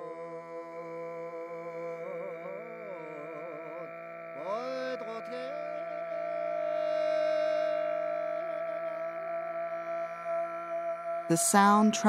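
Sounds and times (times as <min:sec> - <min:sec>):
throat singing low drone: 0:00.0 - 0:12.0
whistling overtone melody: 0:05.5 - 0:09.6.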